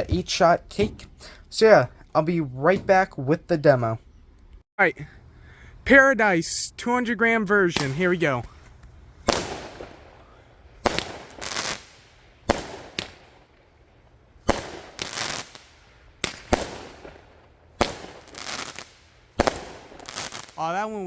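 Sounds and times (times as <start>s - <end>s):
firework crackling and hissing: 9.1s - 13.6s, 14.4s - 20.8s
firework launch bangs: 9.2s - 13.5s, 14.4s - 20.6s.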